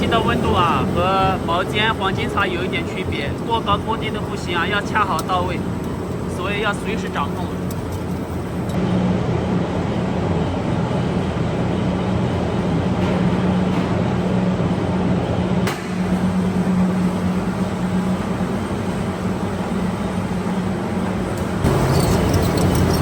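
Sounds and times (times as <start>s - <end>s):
machinery humming and rumbling: 0.0s - 23.0s.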